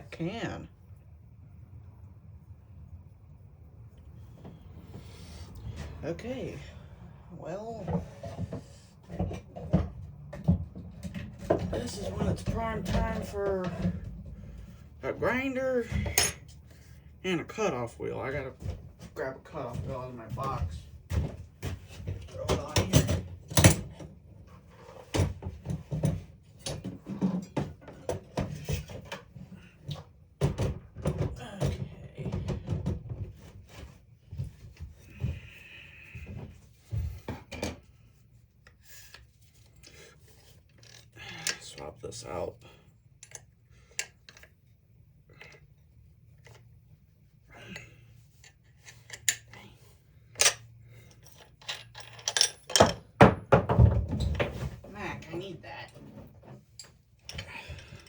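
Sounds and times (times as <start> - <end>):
tools clicking and clunking: 43.1 - 46.8, 47.6 - 54.7
metal clinks and knocks: 50.3 - 54.6.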